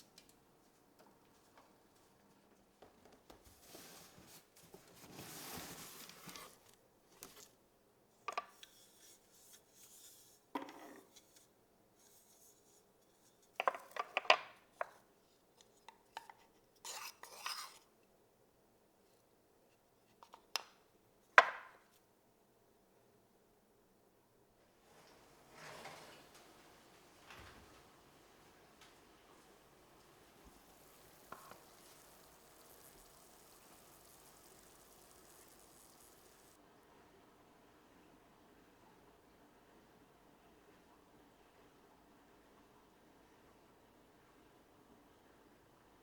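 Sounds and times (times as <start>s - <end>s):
soft rubbing noise: 3.4s - 7.5s, 24.7s - 36.6s.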